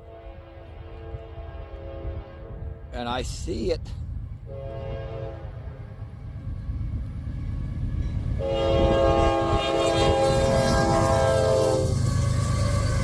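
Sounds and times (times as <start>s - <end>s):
locomotive horn blasts: 0.0s - 2.9s, 4.5s - 5.6s, 8.4s - 12.9s
low train rumble: 0.0s - 13.0s.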